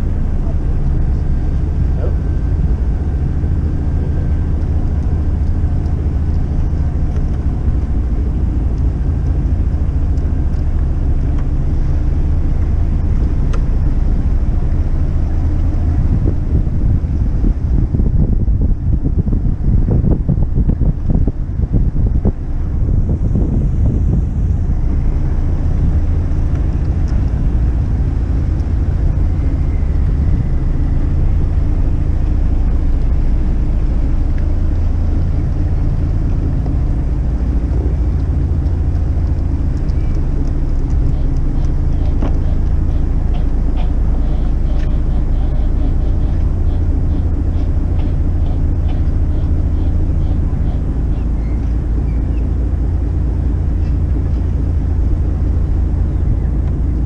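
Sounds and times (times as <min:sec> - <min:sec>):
boat engines droning: 0:00.0 - 0:57.0
light ticks: 0:04.6 - 0:07.4, 0:08.7 - 0:11.5, 0:13.5 - 0:13.7, 0:28.4 - 0:28.8, 0:38.1 - 0:44.0.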